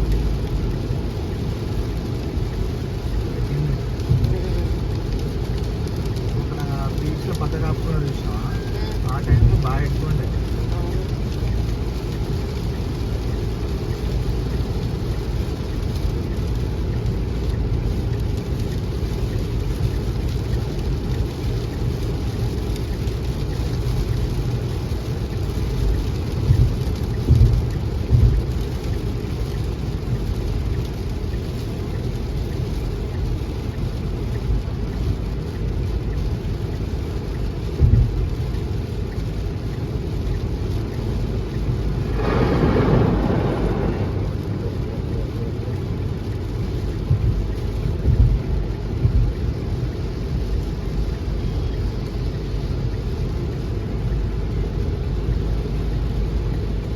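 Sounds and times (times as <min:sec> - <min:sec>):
heavy rain falling: 0:00.0 - 0:56.9
short low thumps: 0:26.5 - 0:28.5, 0:47.0 - 0:49.4.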